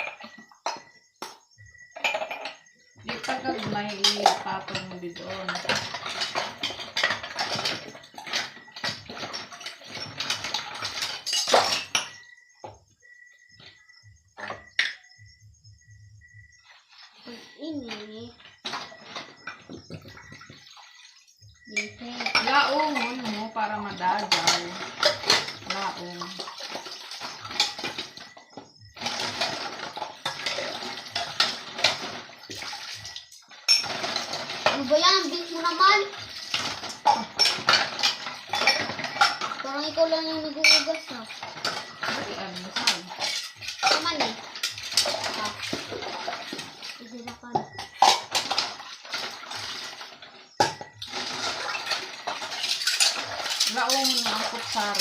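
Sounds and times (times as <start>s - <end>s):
plates and spoons clinking: 0.0s - 12.3s, 17.8s - 28.4s, 29.0s - 55.0s
dishes clattering: 0.0s - 12.8s, 14.4s - 15.3s, 17.8s - 55.0s
dishes knocking: 0.0s - 12.8s, 36.5s - 46.8s, 47.5s - 49.4s, 50.6s - 55.0s
tap water running over dishes: 0.0s - 15.0s, 16.6s - 55.0s.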